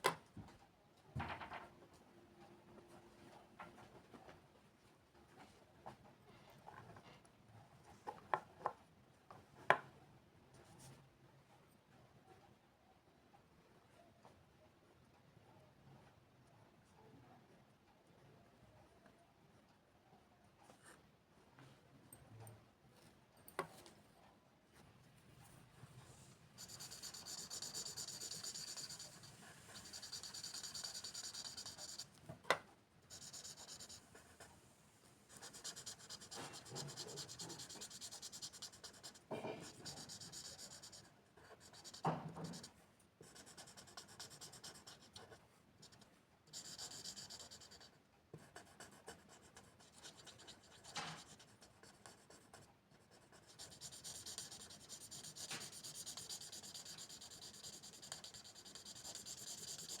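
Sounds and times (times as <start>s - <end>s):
pen scratching on paper: 26.6s - 32.1s, 33.1s - 34.5s, 35.3s - 60.0s.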